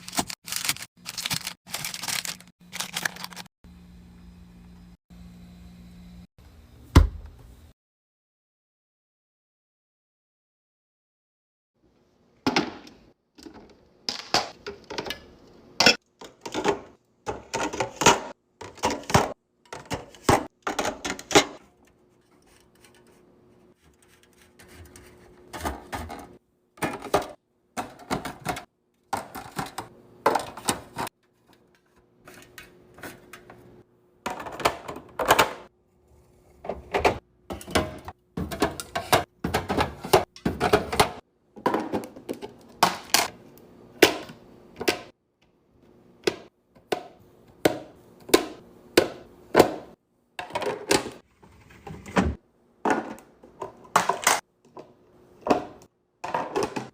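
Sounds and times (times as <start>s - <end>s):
food packages clacking and rustling: 0.0s - 3.5s.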